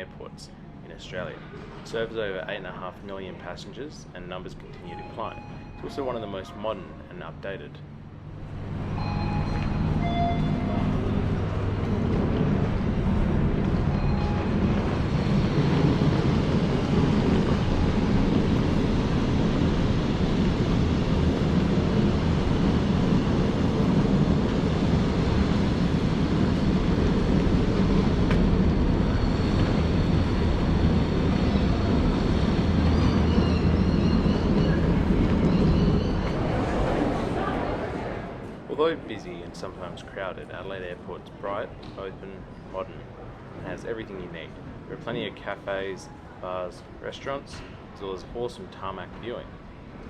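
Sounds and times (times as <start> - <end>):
low rumbling machinery: 7.7 - 40.0.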